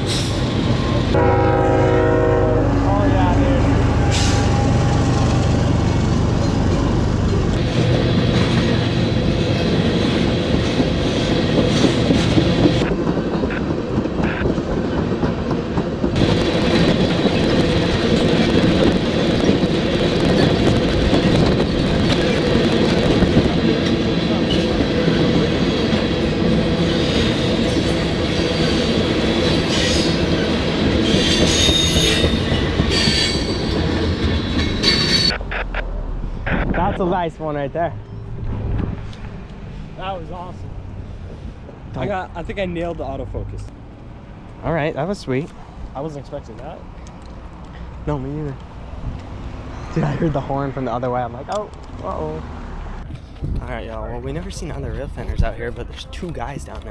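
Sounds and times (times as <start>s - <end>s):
freight train wheels rumbling: 0.0s - 36.9s, 37.9s - 56.9s
high wheel squeals: 26.6s - 35.8s.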